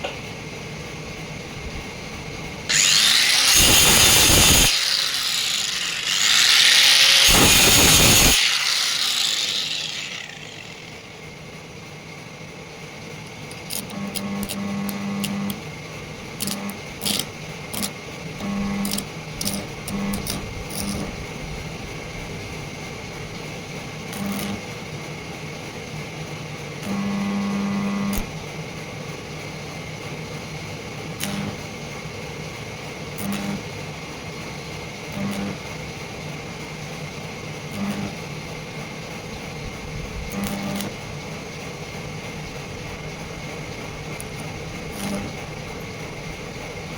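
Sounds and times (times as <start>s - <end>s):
low electrical hum bursts: 0.0s - 25.8s, 26.6s - 46.9s
power tool running: 2.1s - 11.7s, 13.4s - 24.8s, 26.8s - 28.4s, 31.1s - 31.7s, 33.2s - 33.7s, 35.1s - 35.8s, 37.6s - 38.4s, 40.3s - 46.9s.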